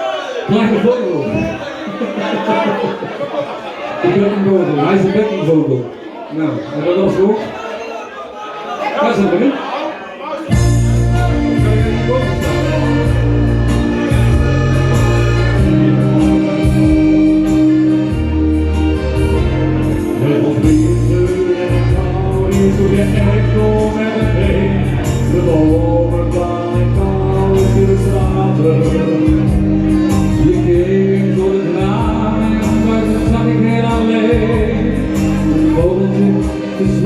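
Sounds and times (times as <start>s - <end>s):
pop music through a loudspeaker: 10.5s - 37.0s.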